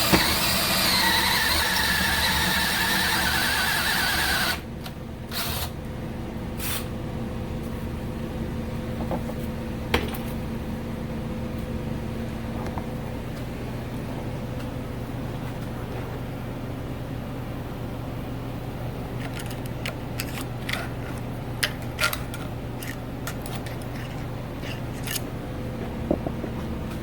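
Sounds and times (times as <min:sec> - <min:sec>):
power drill boring through steel: 0:00.0 - 0:04.6
low steady hum: 0:04.5 - 0:27.0.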